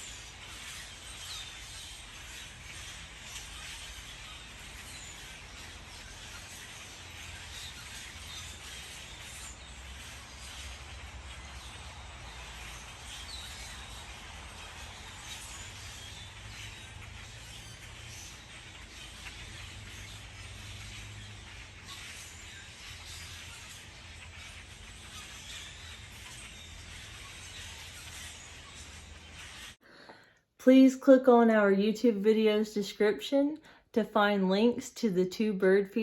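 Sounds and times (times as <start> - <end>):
faint bird chirps: 0.0 - 30.4.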